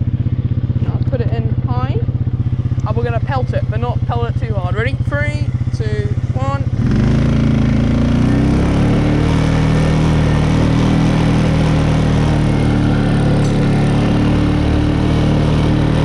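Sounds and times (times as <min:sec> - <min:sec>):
quad bike engine accelerating: 0:00.0 - 0:16.0.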